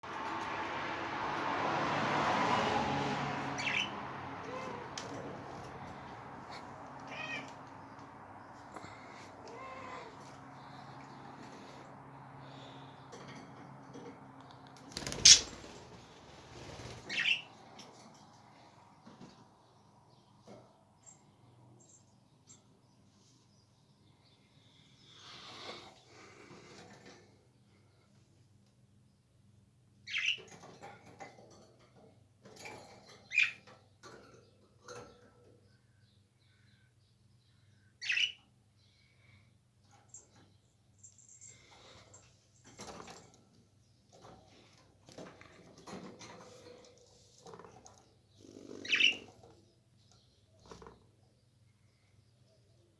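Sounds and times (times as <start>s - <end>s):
pet birds squawking and chirping: 3.4s - 13.3s, 14.8s - 17.8s, 30.0s - 30.7s, 33.1s - 33.8s, 37.8s - 38.5s, 47.4s - 51.0s
soft parrot chirps and chatter: 15.0s - 15.6s, 37.7s - 38.5s, 48.3s - 49.7s
parrot squawks: 15.2s - 15.5s, 48.8s - 49.2s.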